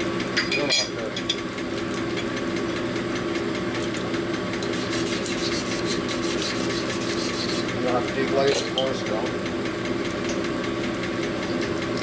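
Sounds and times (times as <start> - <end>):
stones rasping inside metal cylinder: 4.8 - 7.7.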